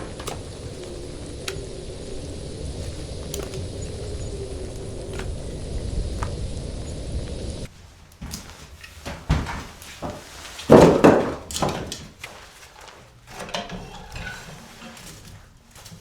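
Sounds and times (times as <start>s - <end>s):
irregular knocks and thuds: 9.0s - 12.0s.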